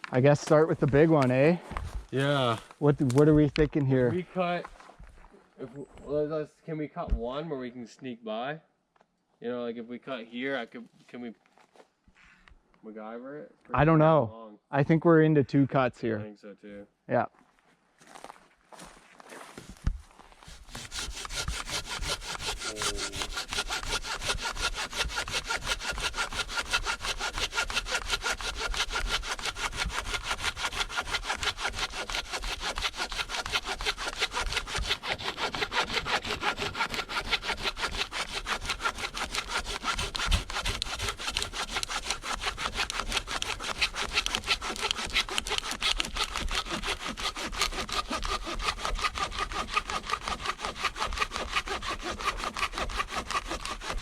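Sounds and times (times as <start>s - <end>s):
hand saw cutting tree trunk: 2.2s - 3.4s, 20.4s - 54.0s.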